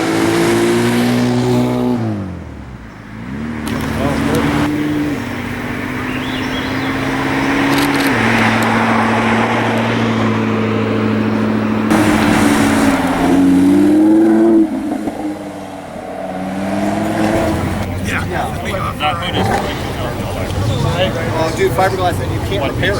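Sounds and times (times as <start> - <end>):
car engine accelerating: 0.0 - 22.9.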